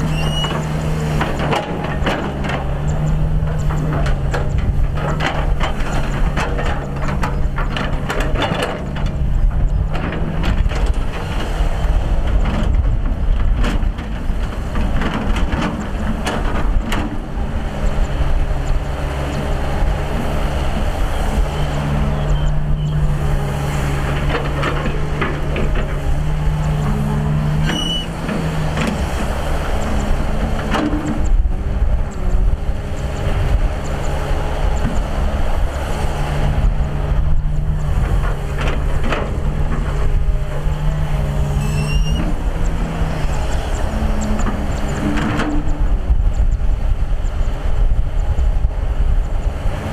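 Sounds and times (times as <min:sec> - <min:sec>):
excavator diesel engine: 0:00.0 - 0:49.9
digging knocks and clanks: 0:00.1 - 0:11.6, 0:12.2 - 0:31.4.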